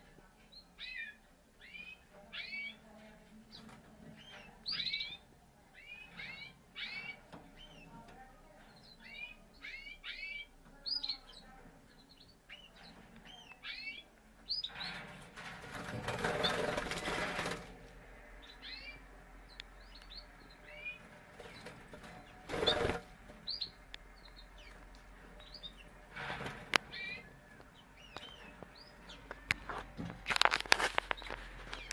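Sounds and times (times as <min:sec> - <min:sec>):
canaries chirping: 0:00.0 - 0:31.9
wing flapping: 0:14.9 - 0:17.8, 0:21.4 - 0:23.5.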